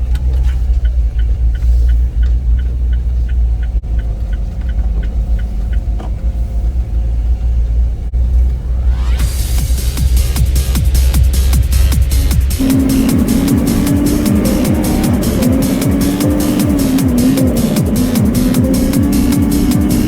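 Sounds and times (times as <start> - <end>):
light regular ticking: 0.0 - 6.0, 12.6 - 20.0
truck engine rumbling: 0.0 - 20.0
electronic music: 12.6 - 20.0.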